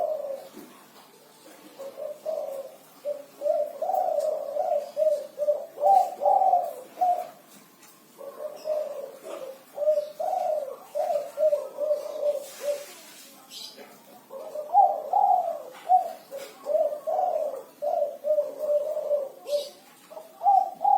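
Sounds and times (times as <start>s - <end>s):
dove cooing: 0.0s - 20.9s.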